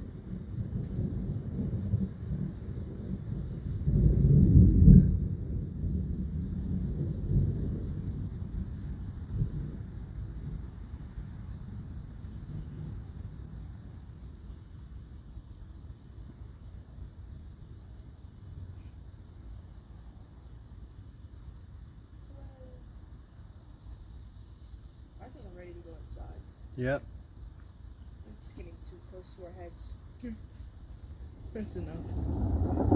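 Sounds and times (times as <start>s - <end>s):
thunder rumbling: 0.0s - 13.6s, 31.2s - 32.9s
crickets chirring: 0.0s - 32.9s
sharp thunder boom: 31.6s - 32.9s.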